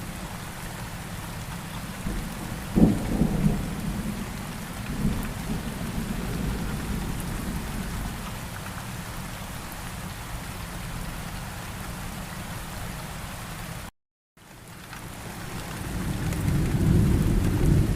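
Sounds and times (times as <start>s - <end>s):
steady rain falling: 0.0s - 17.9s
low rumble of thunder: 2.0s - 8.5s, 15.6s - 17.9s.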